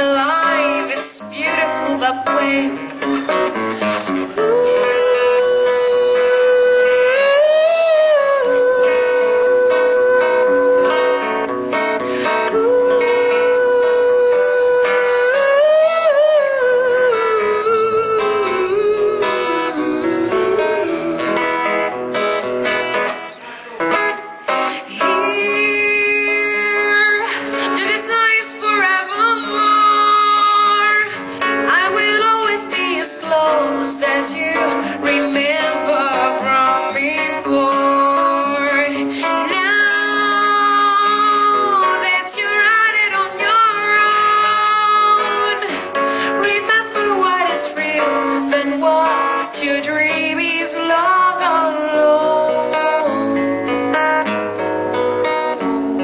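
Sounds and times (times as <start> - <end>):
acoustic guitar playing: 0.0 - 56.0
woman singing long notes: 4.3 - 11.4, 12.2 - 22.0, 24.7 - 45.7, 46.3 - 53.9.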